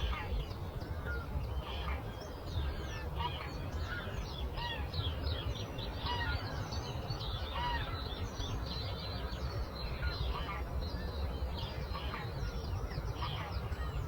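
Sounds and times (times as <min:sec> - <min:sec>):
birds chirping and calling: 0:02.6 - 0:08.6.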